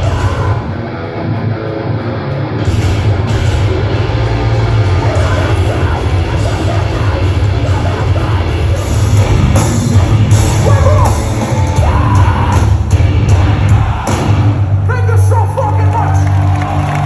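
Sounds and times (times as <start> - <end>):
yelled vocals: 0.0 - 1.3, 2.8 - 14.9
live heavy rock band: 0.0 - 17.0.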